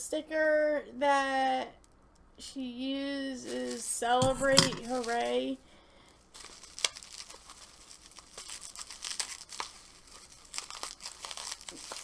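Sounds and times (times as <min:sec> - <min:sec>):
packaging crinkling and tearing: 0:03.5 - 0:05.5, 0:06.2 - 0:12.0.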